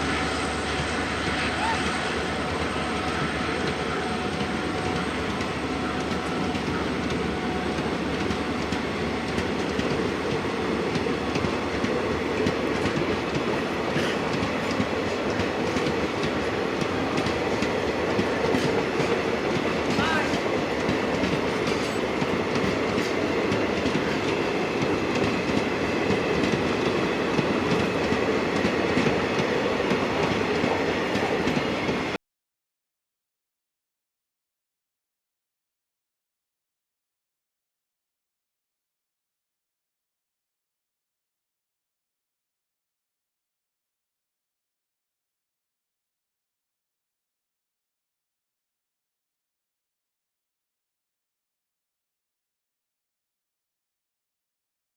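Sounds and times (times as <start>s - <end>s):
train wheels clattering over rail joints: 7.9s - 31.7s.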